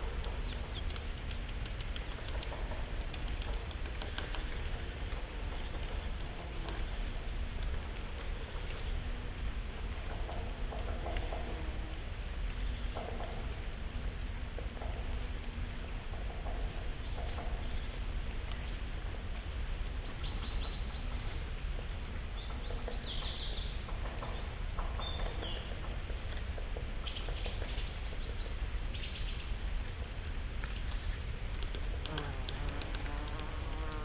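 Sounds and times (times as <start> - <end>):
songbirds chirping: 14.6 - 34.0.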